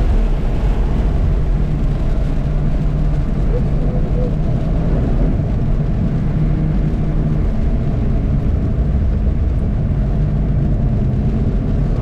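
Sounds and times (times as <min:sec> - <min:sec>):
car engine and tyre drone: 0:00.0 - 0:12.0.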